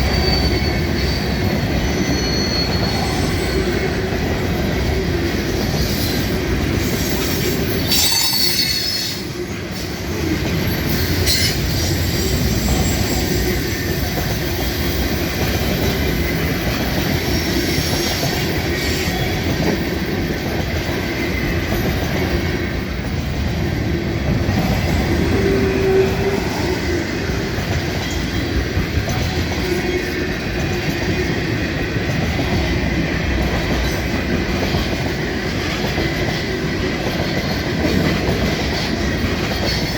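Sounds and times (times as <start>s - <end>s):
wheel squeals: 0.0s - 3.8s, 5.7s - 9.2s
freight train wheels rumbling: 0.0s - 39.9s.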